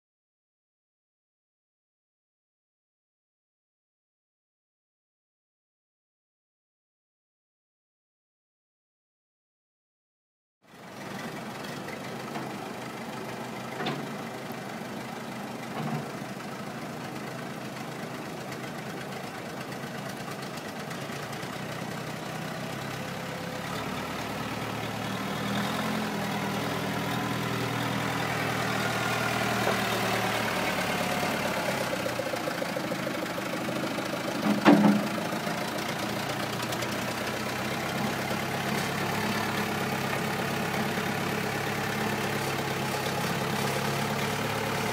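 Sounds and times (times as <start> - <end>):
diesel engine running: 10.7 - 44.9.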